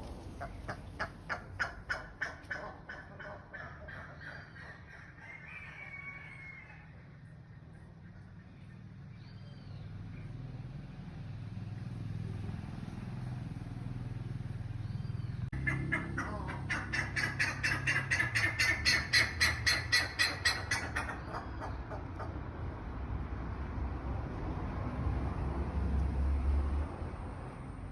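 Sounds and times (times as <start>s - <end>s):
bird repeated calls: 15.0s - 22.3s.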